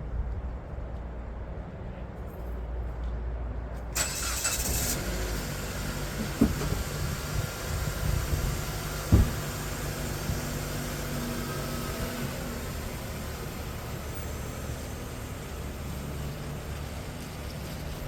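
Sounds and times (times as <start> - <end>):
car engine starting and idling: 3.9 - 18.0
sharp knocks: 9.1 - 9.4.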